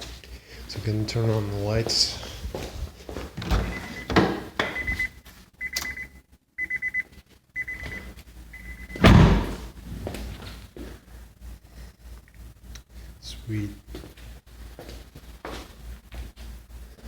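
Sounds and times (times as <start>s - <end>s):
car warning chime beeping: 3.7s - 9.2s
car door shutting: 9.0s - 9.7s.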